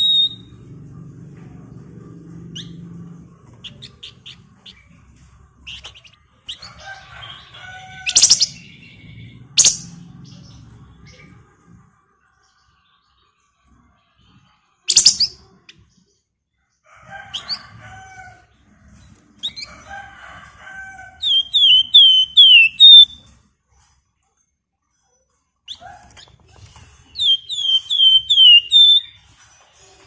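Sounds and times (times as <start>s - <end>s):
downward-sliding whistles: 0.0s - 0.5s, 21.3s - 23.2s, 27.2s - 29.1s
cage bird singing: 0.0s - 16.3s, 21.1s - 23.4s, 25.7s - 30.0s
harsh bird chattering: 8.1s - 8.6s, 9.6s - 9.9s, 14.9s - 15.4s, 27.2s - 29.1s.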